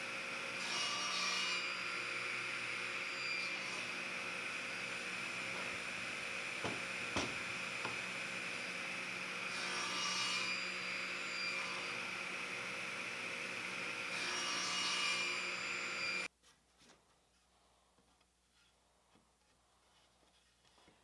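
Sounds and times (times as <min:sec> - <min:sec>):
power tool cutting wood: 0:00.0 - 0:16.3.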